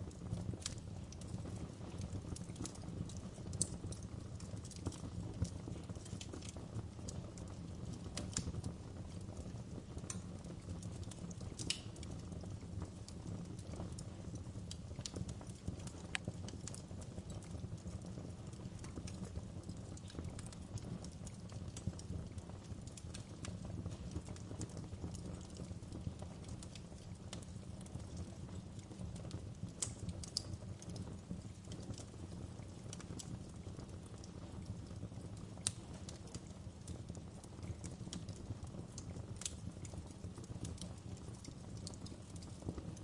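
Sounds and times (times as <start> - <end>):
wood crackling and popping: 0.0 - 43.0
wood fire rumbling: 0.0 - 43.0.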